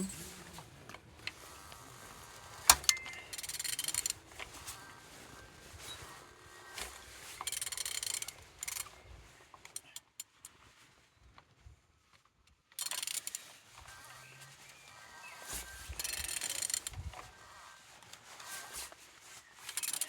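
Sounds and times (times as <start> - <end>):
ratchet wrench clicking: 7.4 - 8.8, 12.8 - 13.4, 16.0 - 16.9, 19.6 - 20.0.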